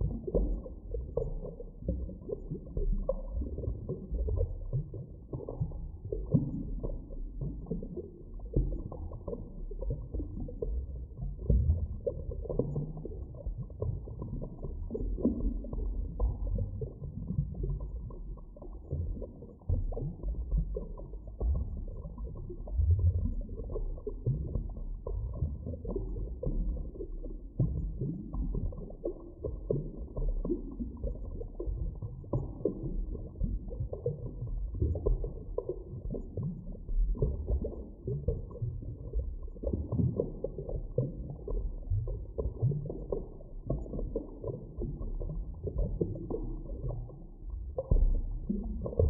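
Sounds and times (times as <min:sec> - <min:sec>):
underwater low rumble: 0:00.0 - 0:49.0.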